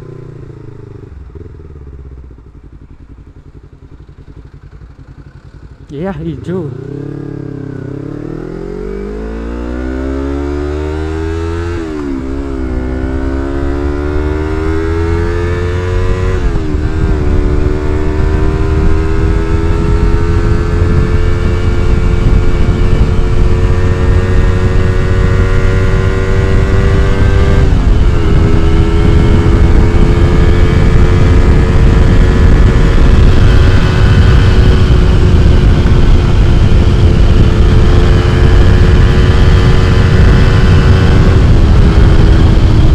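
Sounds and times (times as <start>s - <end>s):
motorcycle engine accelerating: 0.0s - 42.9s
wind rush on microphone: 10.9s - 42.9s.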